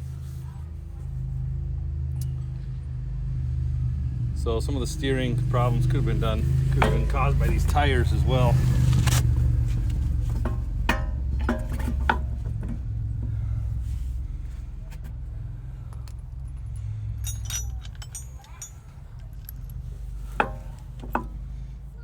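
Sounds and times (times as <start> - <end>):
steady low hum: 0.0 - 22.0
metal tools clinking: 5.6 - 8.6, 9.9 - 12.8, 15.9 - 21.4.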